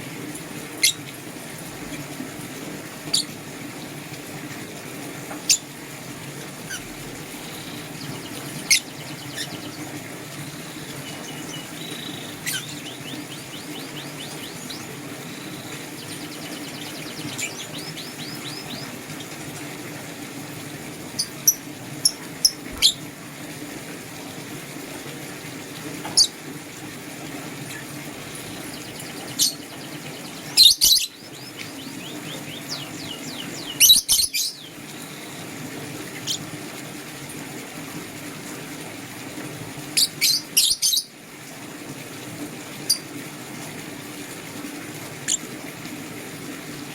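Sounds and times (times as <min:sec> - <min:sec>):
faint rapid bird chatter: 0:06.6 - 0:19.5, 0:21.0 - 0:23.1, 0:27.6 - 0:36.5
lovebirds chirping: 0:06.7 - 0:19.3, 0:21.1 - 0:23.1, 0:27.8 - 0:35.4.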